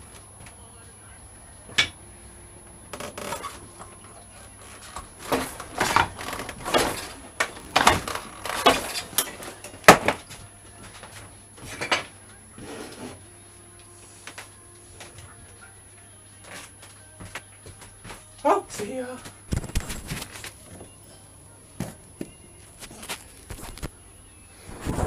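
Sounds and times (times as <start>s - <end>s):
parts scraping and rubbing: 3.0s - 13.3s.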